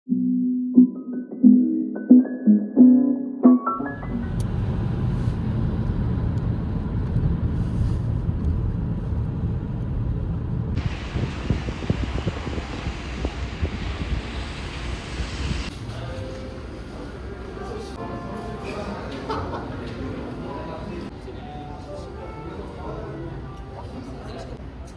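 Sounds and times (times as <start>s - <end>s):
low rain rumble: 4.0s - 18.0s
bright rain hiss: 10.8s - 15.7s.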